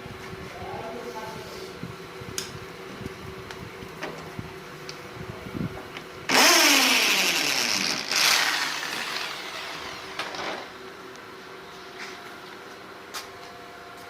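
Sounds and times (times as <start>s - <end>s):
power saw cutting wood: 6.3s - 10.7s.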